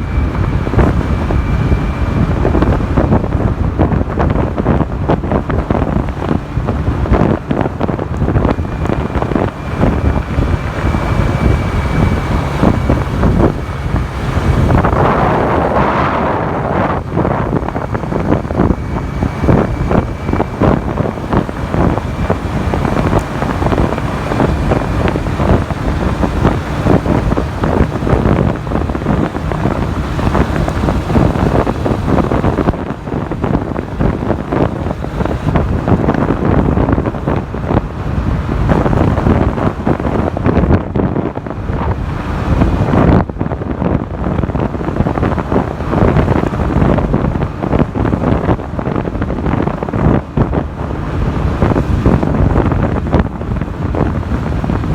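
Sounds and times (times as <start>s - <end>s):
motorcycle and road noise: 0.0s - 54.9s
wind buffeting microphone: 0.0s - 54.9s.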